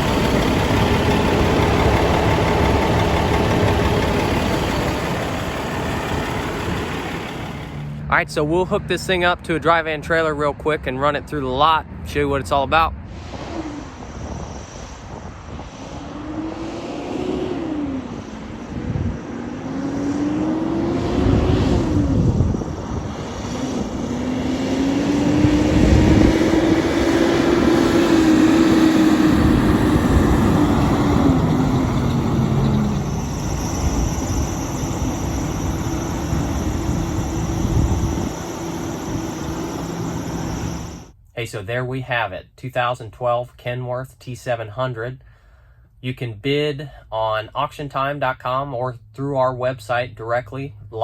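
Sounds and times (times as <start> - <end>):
truck diesel engine accelerating: 0.0 - 9.2, 16.1 - 41.1.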